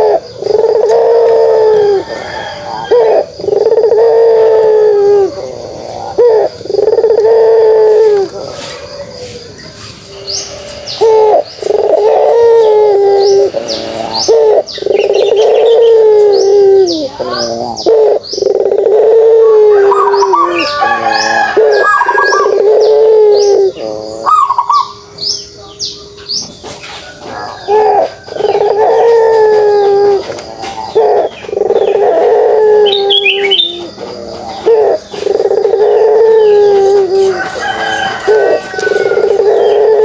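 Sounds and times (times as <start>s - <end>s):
dove cooing: 0.0s - 26.2s, 27.1s - 40.0s
small birds chirping: 5.1s - 40.0s.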